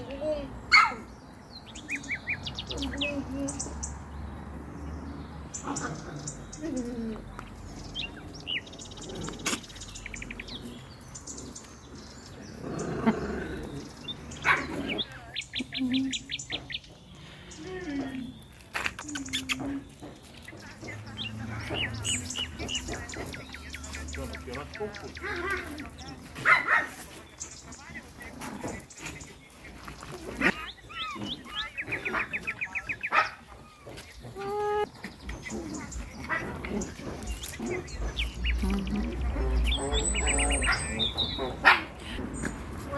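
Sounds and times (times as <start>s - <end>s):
songbirds chirping: 0.0s - 42.9s
small dogs barking: 0.6s - 1.2s, 5.5s - 7.2s, 12.5s - 16.9s, 19.4s - 42.9s
steady-pitched bird call: 30.4s - 36.1s.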